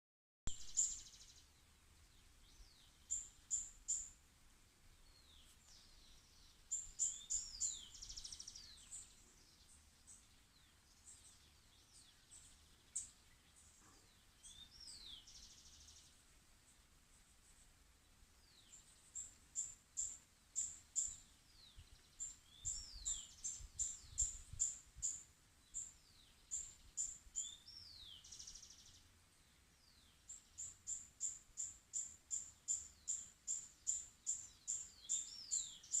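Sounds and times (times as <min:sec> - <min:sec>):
songbird chirping and whistling: 0:05.1 - 0:09.2, 0:14.4 - 0:16.0, 0:18.5 - 0:28.9, 0:29.9 - 0:36.0.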